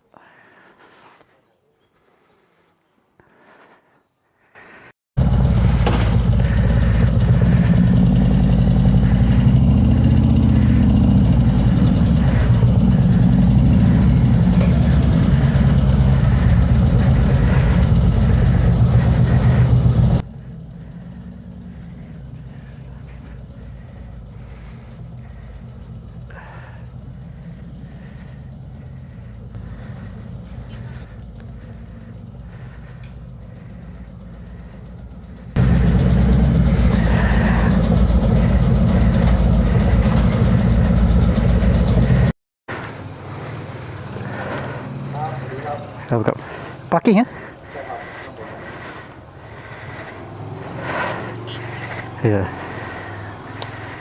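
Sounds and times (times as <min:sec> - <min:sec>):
motorcycle engine running: 0:05.2 - 0:54.0.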